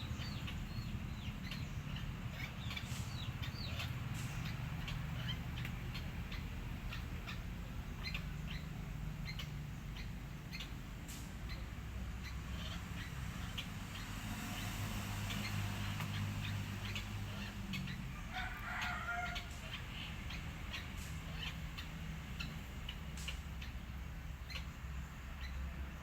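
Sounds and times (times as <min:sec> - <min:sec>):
bird squawking: 0:00.0 - 0:10.8, 0:11.4 - 0:25.8
steady low hum: 0:00.0 - 0:18.6.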